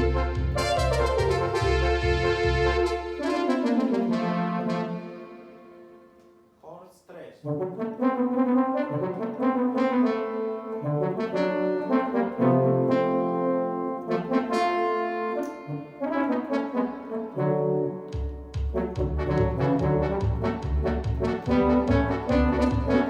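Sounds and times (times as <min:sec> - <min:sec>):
deep synth bass line: 0:00.0 - 0:03.3, 0:18.8 - 0:23.0
synthesizer brass-like chords: 0:00.0 - 0:23.0.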